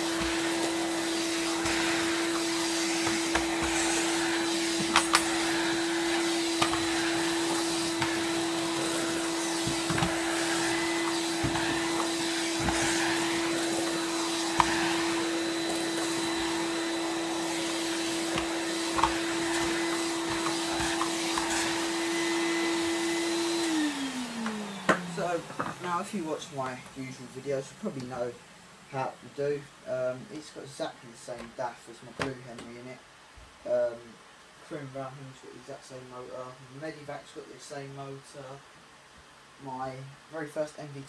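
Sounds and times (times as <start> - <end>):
vacuum cleaner running: 0.0 - 27.0.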